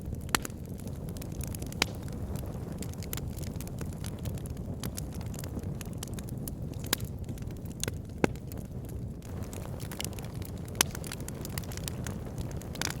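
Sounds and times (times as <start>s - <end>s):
fire rumbling in log burner: 0.0s - 13.0s
wood crackling and popping: 0.0s - 13.0s.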